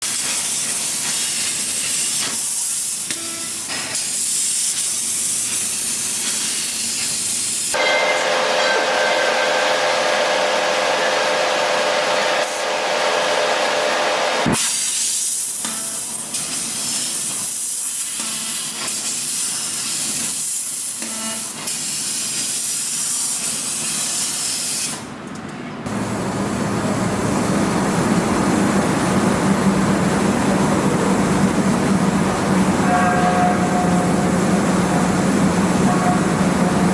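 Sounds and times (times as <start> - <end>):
laser cutter gas jet hiss: 0.0 - 7.8, 14.4 - 25.0.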